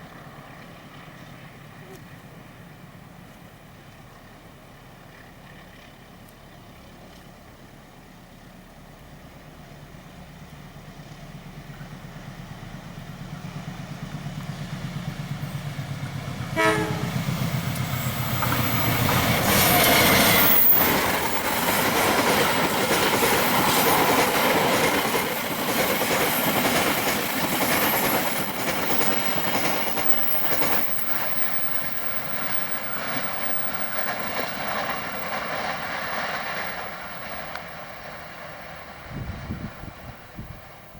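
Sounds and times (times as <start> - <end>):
diesel locomotive rumble: 0.0 - 40.9
train running past on rails: 0.0 - 40.9
train horn blast: 16.5 - 17.9.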